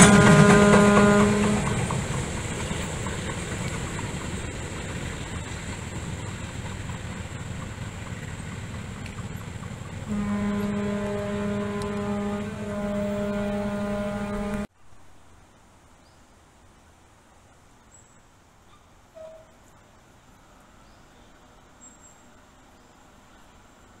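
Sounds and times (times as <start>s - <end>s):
long steady train horn: 0.0s - 2.4s, 9.7s - 14.7s, 19.1s - 19.7s
train rumble: 0.0s - 14.7s.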